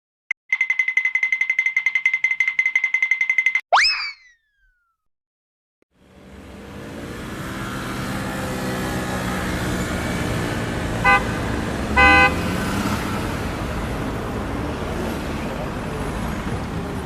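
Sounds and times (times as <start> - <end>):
road traffic: 5.9 - 17.0
car horn beeps: 11.0 - 12.6.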